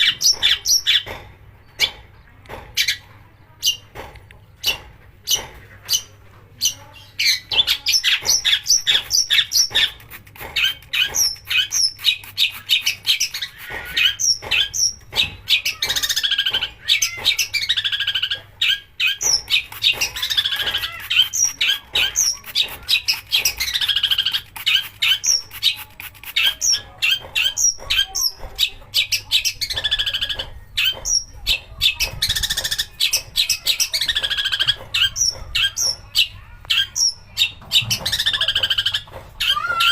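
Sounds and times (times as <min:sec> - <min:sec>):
harsh rasping bird chatter: 0:00.0 - 0:39.9.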